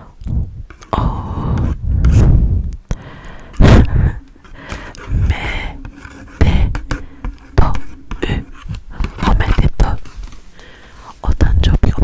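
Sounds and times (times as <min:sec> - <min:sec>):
breathy puffs and murmurs: 0:00.0 - 0:11.8.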